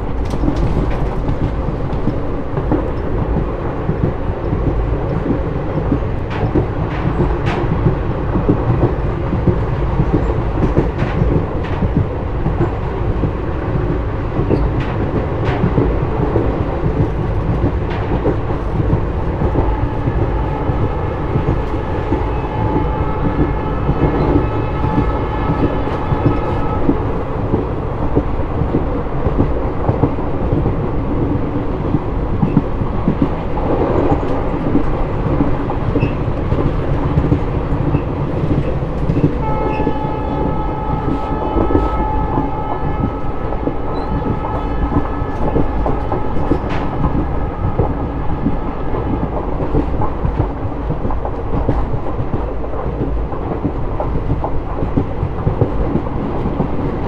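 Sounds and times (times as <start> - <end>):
train rumble and wheel clicks: 0.0 - 57.0
locomotive horn: 19.4 - 27.6, 39.4 - 50.0.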